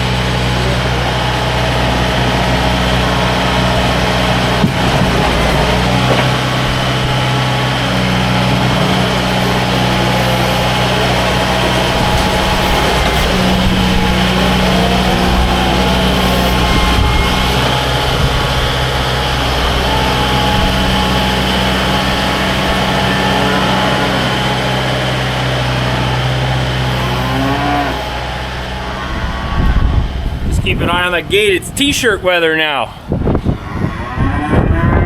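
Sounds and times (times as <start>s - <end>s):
tractor diesel engine running: 0.0s - 34.0s
cattle mooing: 0.8s - 35.0s.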